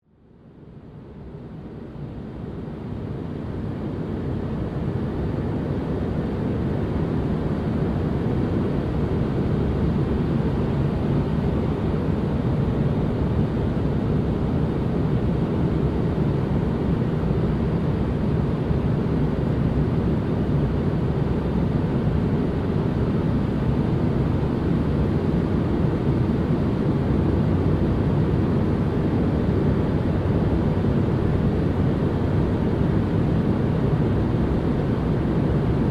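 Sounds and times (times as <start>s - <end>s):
deep white noise rush: 0.2s - 35.9s.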